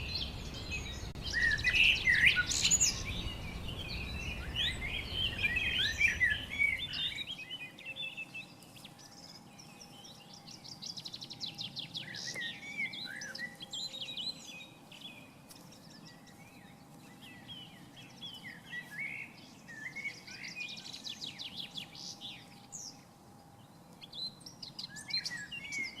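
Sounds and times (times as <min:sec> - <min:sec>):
low rumble: 0:00.0 - 0:07.0
birds chirping: 0:00.0 - 0:26.0.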